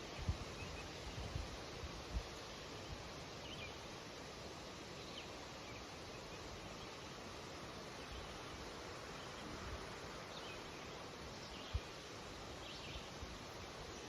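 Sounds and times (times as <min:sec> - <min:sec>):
wind rustling through leaves: 0:00.0 - 0:14.0
faint bird chirps: 0:02.5 - 0:03.9.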